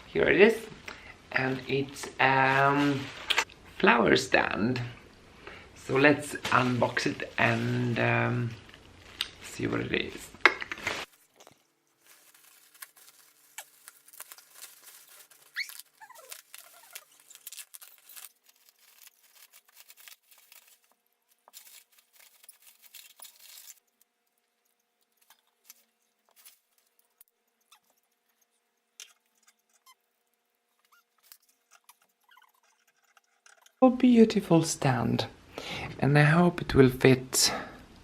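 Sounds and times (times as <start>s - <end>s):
packaging rustling and parts clicking: 8.4s - 27.3s.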